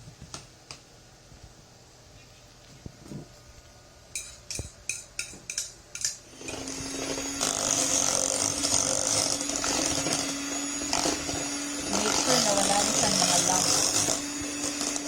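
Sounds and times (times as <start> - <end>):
utensil clinking against bowl: 4.1 - 6.7
electric hand mixer running: 6.3 - 15.0.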